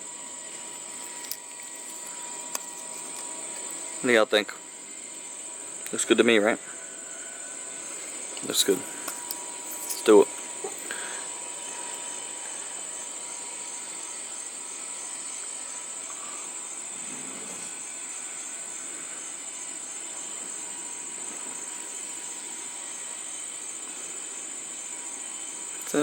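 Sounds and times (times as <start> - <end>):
background hiss: 0.0 - 26.0
high-pitched insect trill: 0.0 - 26.0.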